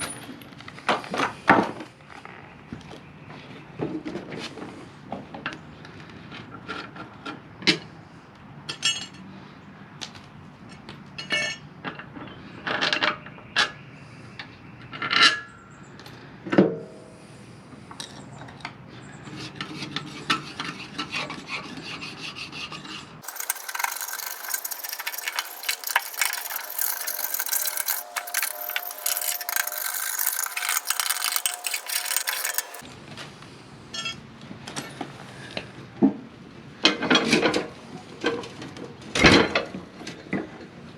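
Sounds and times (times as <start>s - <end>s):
rapid scraping or ratcheting: 23.2s - 32.8s.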